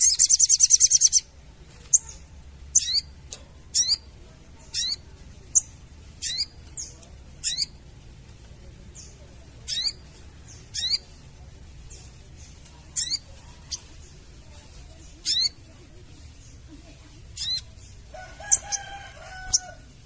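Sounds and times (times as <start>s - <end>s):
bird chattering call: 0.0s - 1.3s, 1.9s - 7.8s, 9.7s - 11.2s, 12.9s - 14.0s, 15.1s - 15.7s, 17.3s - 19.8s.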